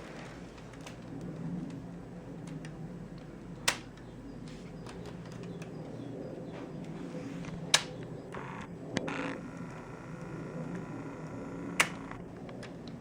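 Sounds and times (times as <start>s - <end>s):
steady low hum: 0.0s - 13.0s
sharp clicks: 3.6s - 4.1s, 7.5s - 13.0s.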